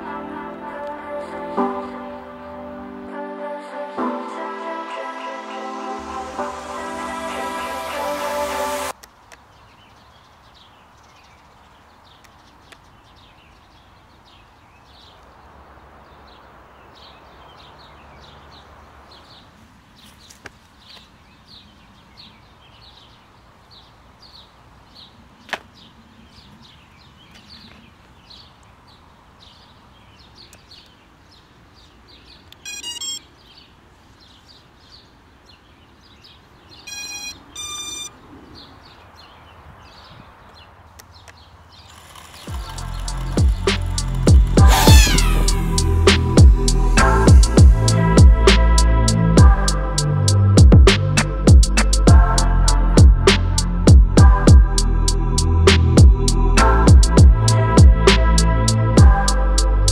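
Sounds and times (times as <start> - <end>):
electronic beeps: 32.6 - 33.3, 36.8 - 38.1
field ambience: 40.7 - 59.9
short high chirp: 42.5 - 46.8.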